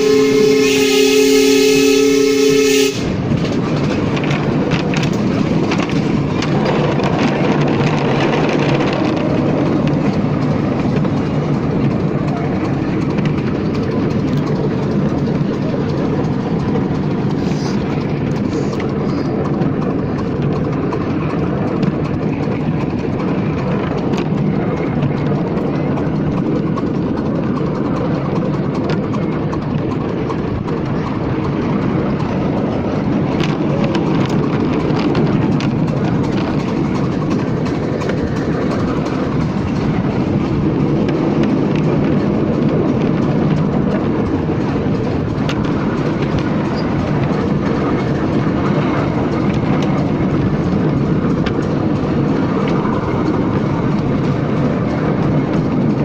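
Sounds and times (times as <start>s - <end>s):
steam locomotive whistle: 0.0s - 3.2s
miniature train rumbling on track: 0.0s - 56.0s.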